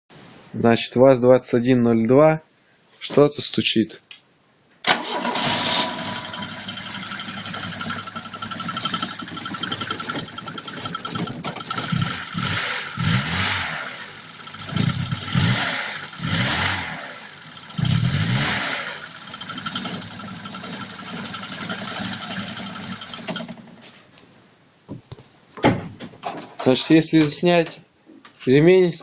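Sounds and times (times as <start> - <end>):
car engine knocking: 6.4 - 13.2, 19.0 - 23.5.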